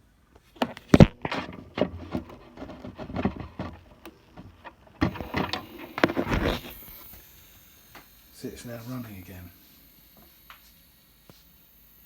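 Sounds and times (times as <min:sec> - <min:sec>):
plastic clicks and knocks: 0:00.6 - 0:07.1.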